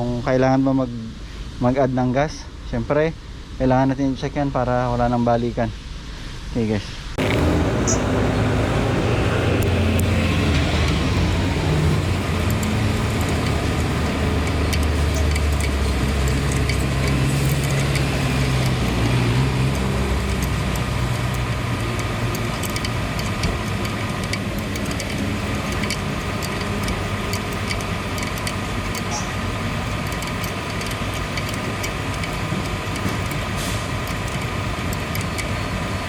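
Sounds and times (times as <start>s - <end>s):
bus engine running: 7.2s - 36.0s.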